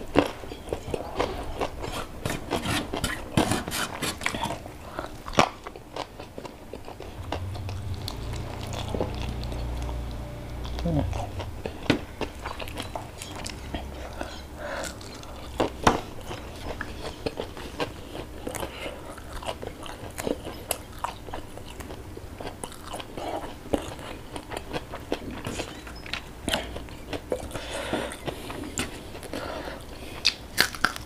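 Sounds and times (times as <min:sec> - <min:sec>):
crisp crunching while chewing: 0:10.8 - 0:31.0.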